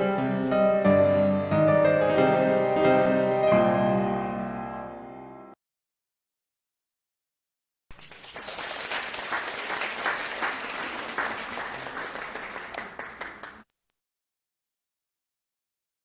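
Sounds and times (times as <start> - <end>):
crowd applauding: 7.9 - 13.6.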